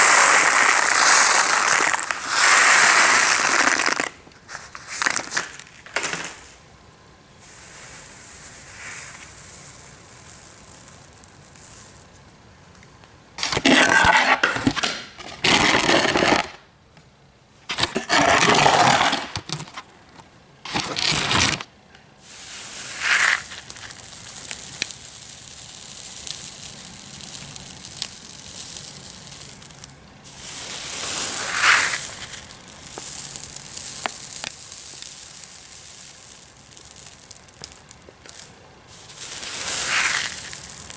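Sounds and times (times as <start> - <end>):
small rocks rattling and crunching: 0.0 - 6.6, 13.4 - 16.6, 17.7 - 21.7, 22.4 - 40.9.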